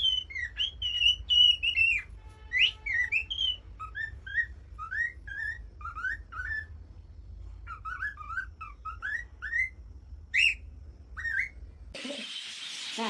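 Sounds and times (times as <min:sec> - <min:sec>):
parrot whistling: 0:00.0 - 0:06.7, 0:07.7 - 0:09.8.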